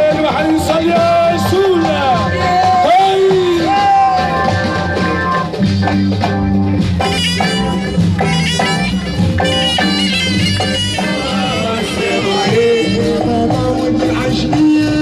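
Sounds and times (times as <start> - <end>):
steady drumbeat: 0.0 - 15.0
reed instrument melody: 6.8 - 13.5.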